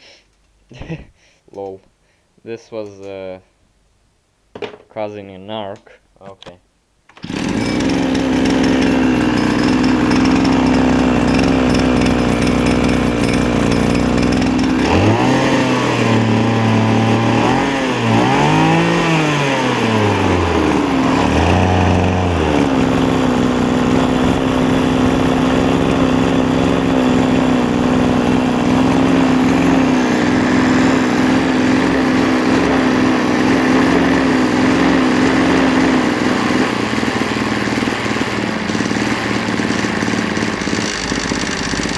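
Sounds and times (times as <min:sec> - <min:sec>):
small two-stroke engine revving: 0:07.2 - 0:41.9
metal beating noise: 0:07.4 - 0:17.2.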